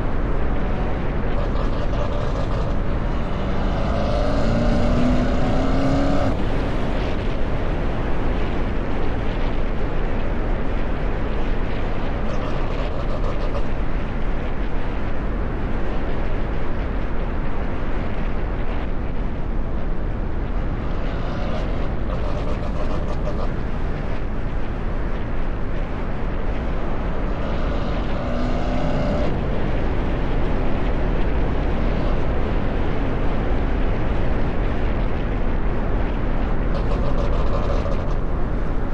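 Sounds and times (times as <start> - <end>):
car driving: 0.0 - 9.9, 20.4 - 38.9
wind rumble on microphone: 0.0 - 38.9.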